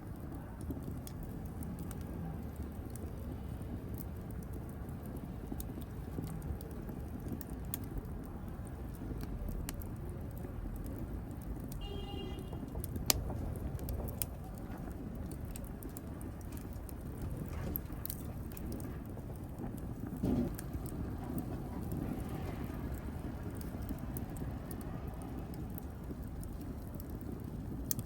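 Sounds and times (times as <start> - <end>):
fire crackling in a fireplace: 0.0 - 28.0.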